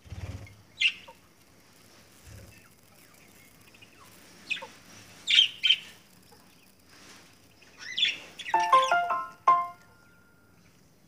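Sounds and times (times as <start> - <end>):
cage birds chirping: 0.1 - 11.0
tune of clear stepped notes: 8.6 - 10.4.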